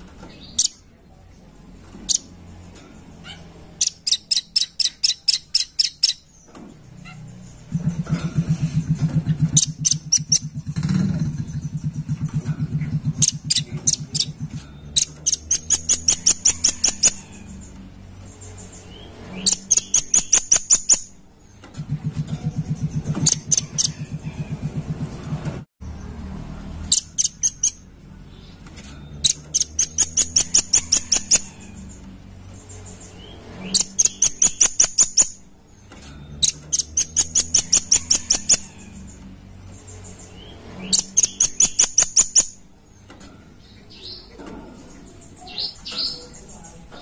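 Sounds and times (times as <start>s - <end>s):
low pulsing hum: 7.4s - 16.7s.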